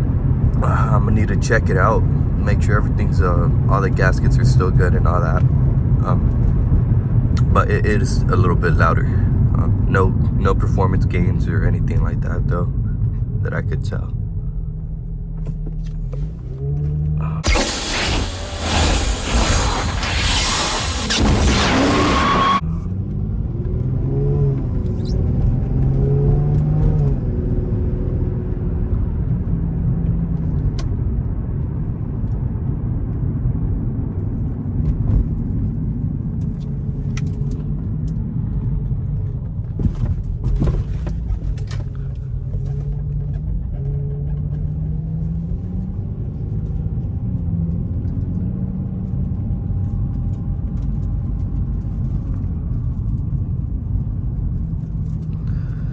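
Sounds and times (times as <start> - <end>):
car engine revving: 15.4 - 29.4.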